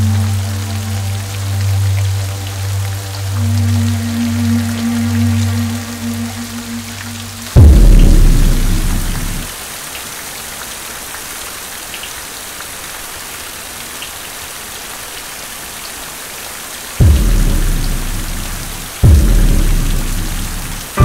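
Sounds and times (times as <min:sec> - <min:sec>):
heavy rain: 0:00.0 - 0:21.0
deep boom: 0:07.6 - 0:09.5, 0:17.0 - 0:21.0.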